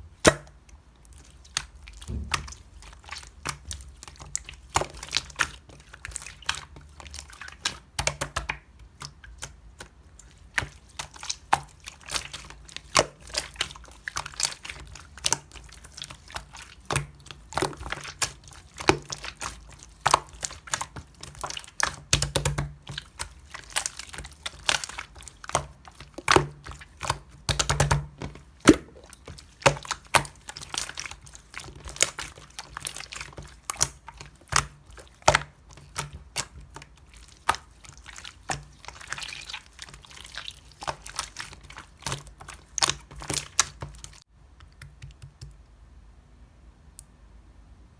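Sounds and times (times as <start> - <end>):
slime squished by hand: 0.2 - 45.6.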